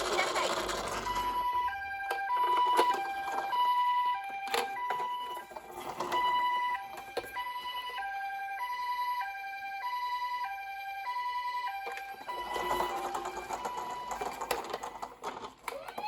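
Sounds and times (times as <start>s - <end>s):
two-tone electronic siren: 0.1s - 16.0s.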